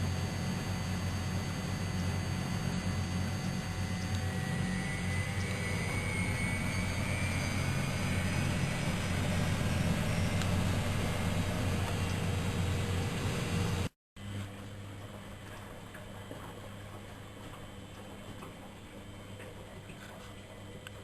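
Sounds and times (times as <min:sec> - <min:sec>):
faint high whine: 0:00.0 - 0:13.9
washing machine running: 0:00.0 - 0:21.0.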